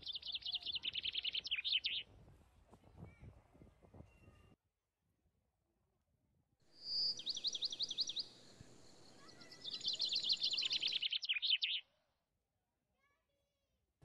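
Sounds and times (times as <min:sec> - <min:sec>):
bird singing: 0:00.0 - 0:02.0, 0:06.8 - 0:11.8.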